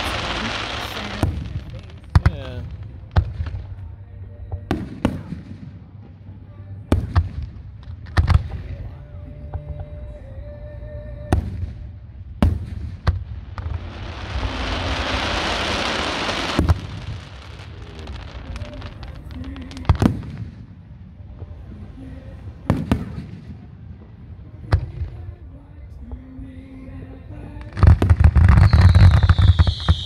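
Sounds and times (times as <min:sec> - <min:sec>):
loud steady hiss: 0:00.0 - 0:04.0, 0:09.4 - 0:23.4
fireworks bursting with bangs: 0:00.0 - 0:10.2, 0:11.2 - 0:25.4, 0:27.4 - 0:30.0.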